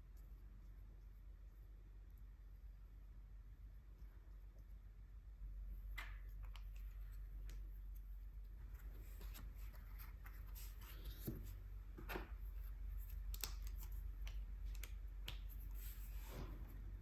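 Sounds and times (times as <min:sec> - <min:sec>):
light clicks and taps: 0:13.0 - 0:15.8.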